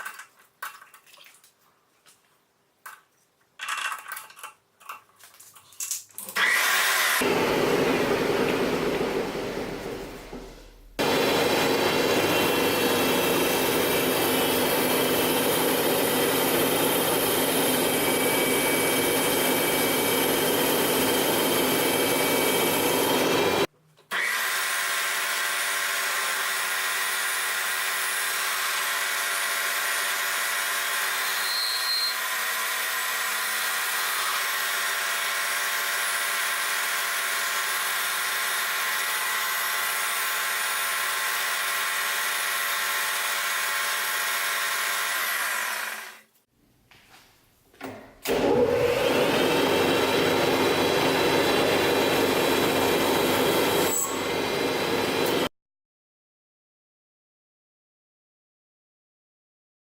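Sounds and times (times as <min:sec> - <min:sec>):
machine tool cutting metal: 0:12.2 - 0:46.2.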